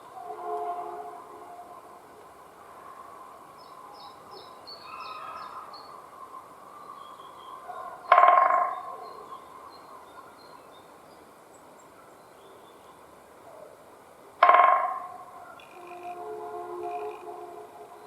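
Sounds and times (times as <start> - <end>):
woodpecker drumming on wood: 8.1 - 8.7, 14.4 - 17.3.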